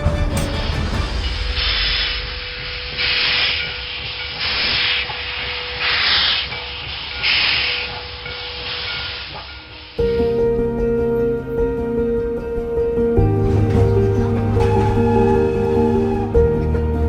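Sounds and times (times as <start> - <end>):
music: 0.0 - 6.0, 10.0 - 17.0
steam locomotive exhaust chuffs: 13.3 - 17.0.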